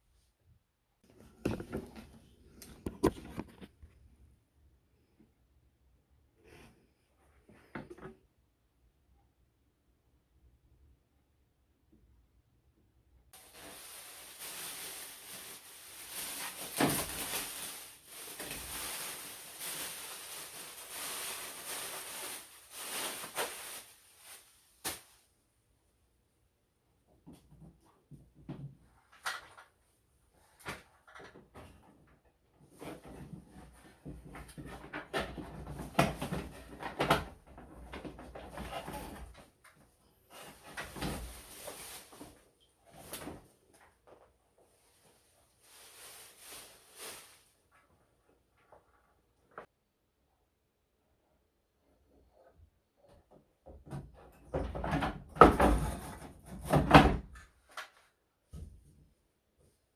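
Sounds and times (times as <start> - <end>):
rustling: 13.4 - 25.3, 40.1 - 47.9.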